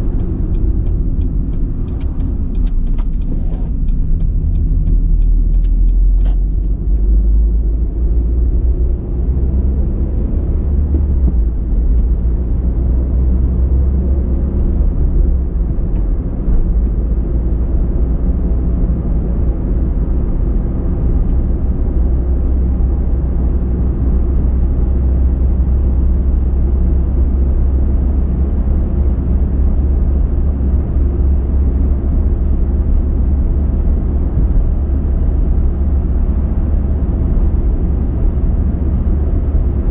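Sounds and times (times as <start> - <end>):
car driving rumble: 0.0 - 39.9.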